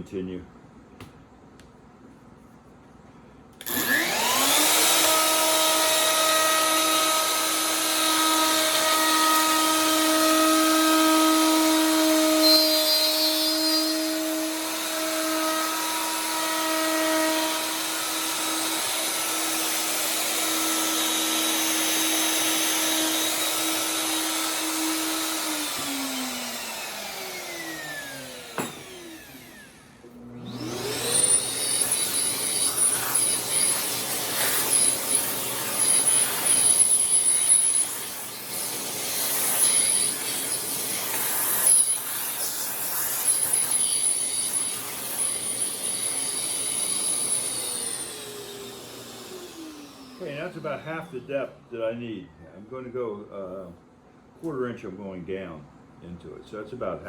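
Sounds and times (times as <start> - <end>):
router spinning down: 3.6 - 51.6
router whining while cutting: 3.6 - 51.6.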